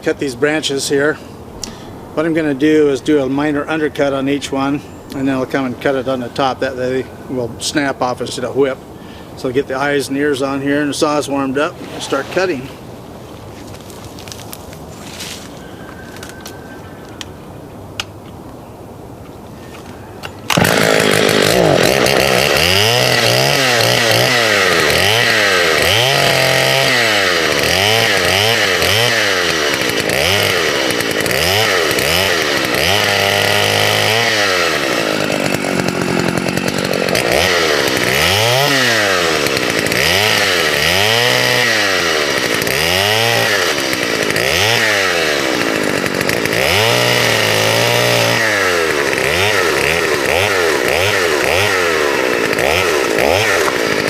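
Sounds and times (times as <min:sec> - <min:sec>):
chainsaw revving: 0:09.8 - 0:12.8, 0:20.4 - 0:54.0.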